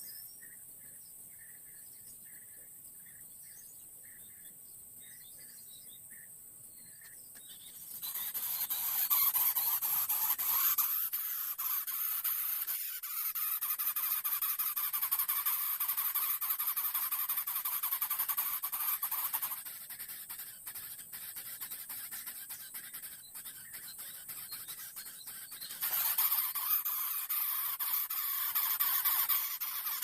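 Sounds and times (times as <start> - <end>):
bird chick rasping begging call: 7.5 - 30.0.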